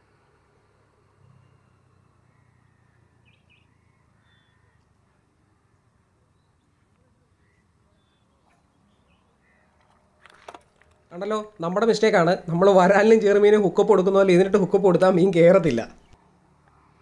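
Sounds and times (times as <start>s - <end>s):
faint short bird calls: 1.3s - 5.8s, 6.4s - 10.0s.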